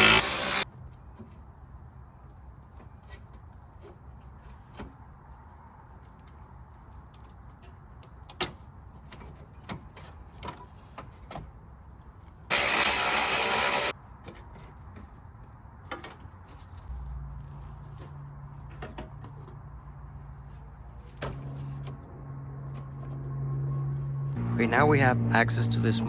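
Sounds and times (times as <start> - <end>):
power tool running: 0.0 - 0.6, 12.5 - 13.9.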